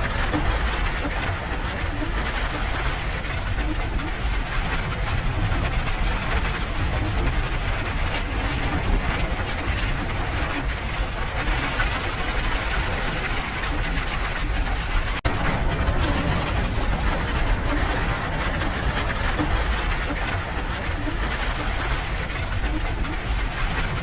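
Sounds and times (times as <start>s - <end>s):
steady rain: 0.0s - 24.0s
low rumble: 14.4s - 24.0s.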